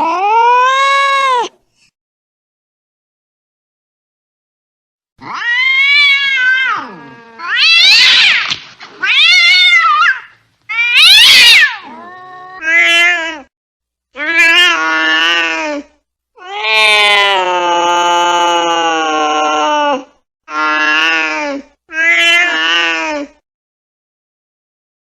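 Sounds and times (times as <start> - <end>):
cat yowling angrily: 0.0 - 1.5, 5.2 - 13.5, 14.2 - 15.7, 16.4 - 21.3, 21.9 - 23.1.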